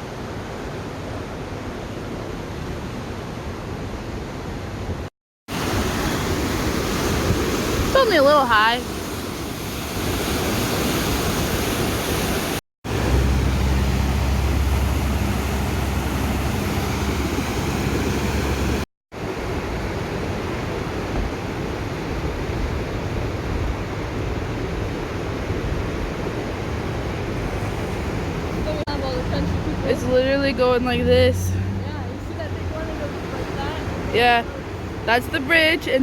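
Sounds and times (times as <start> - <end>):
river floodwater rushing: 5.5 - 36.0.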